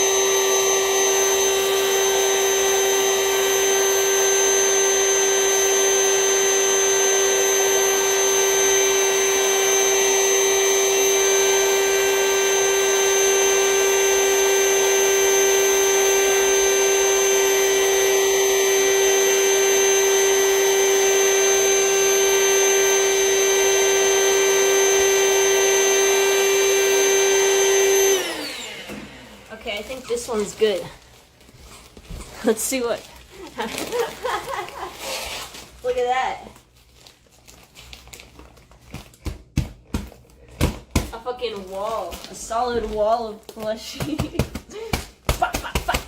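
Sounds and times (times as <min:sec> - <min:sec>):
vacuum cleaner whining: 0:00.0 - 0:36.7.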